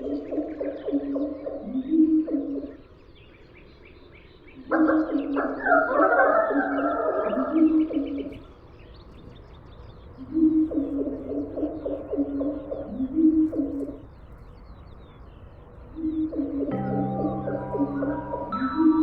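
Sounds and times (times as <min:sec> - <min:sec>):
small birds chirping: 0:06.6 - 0:19.0.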